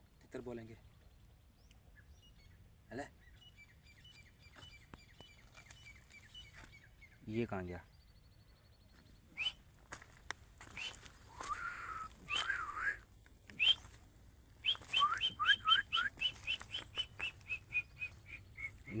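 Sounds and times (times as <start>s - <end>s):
francolin whistled calls: 9.4s - 9.6s, 10.6s - 13.0s, 13.6s - 13.9s, 14.6s - 19.0s.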